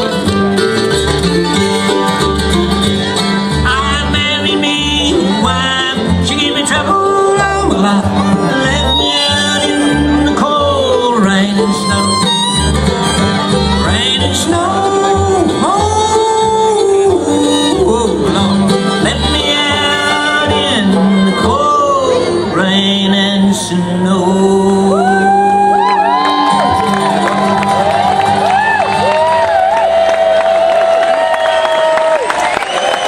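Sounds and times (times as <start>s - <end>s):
pulsing bass line: 0.0s - 29.8s
banjo: 0.0s - 30.1s
fiddle: 0.0s - 30.1s
person singing: 3.5s - 27.8s.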